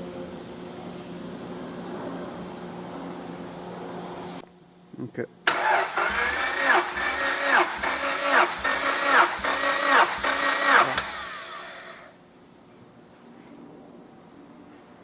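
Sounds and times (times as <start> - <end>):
car engine revving in blips: 5.5 - 11.7.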